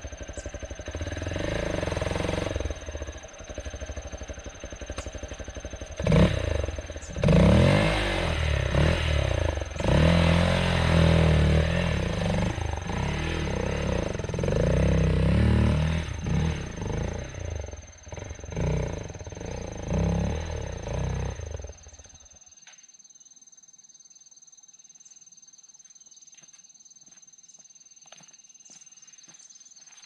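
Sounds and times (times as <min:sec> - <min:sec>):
motorcycle engine revving: 0:00.0 - 0:22.4.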